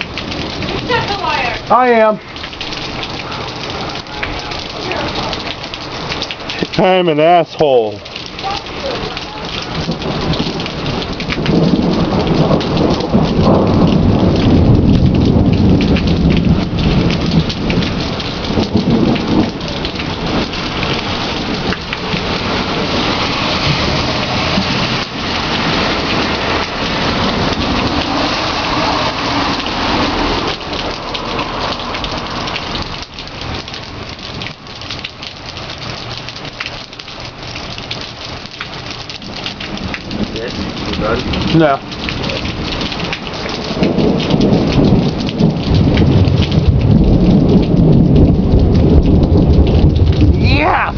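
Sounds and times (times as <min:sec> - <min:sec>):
steady rain falling: 0:00.0 - 0:50.9
thunder rolling: 0:08.4 - 0:34.6, 0:39.2 - 0:50.9.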